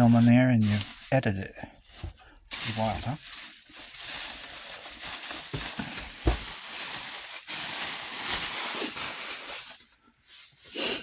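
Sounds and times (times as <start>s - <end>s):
packaging rustling: 0.0s - 1.2s, 1.8s - 10.0s
dull knocks: 5.6s - 6.5s.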